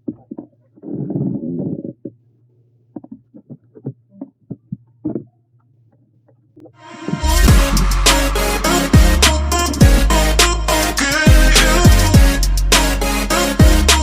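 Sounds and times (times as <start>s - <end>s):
hip-hop music with heavy bass: 6.8s - 14.0s.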